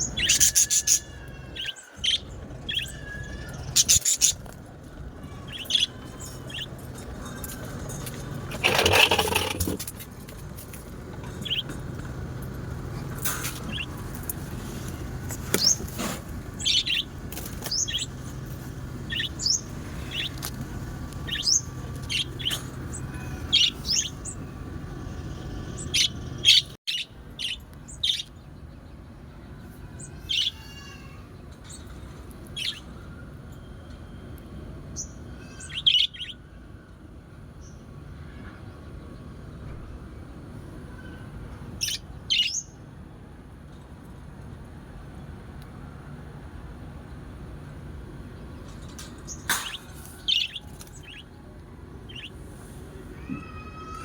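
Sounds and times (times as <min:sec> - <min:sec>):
small birds chirping: 0:00.0 - 0:09.5, 0:10.7 - 0:33.1, 0:48.2 - 0:54.0.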